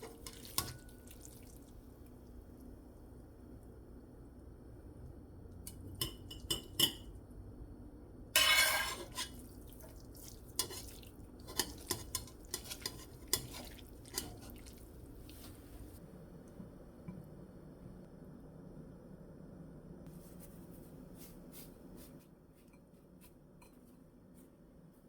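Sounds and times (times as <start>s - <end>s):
cutlery scraping: 8.4s - 9.4s, 10.6s - 14.6s.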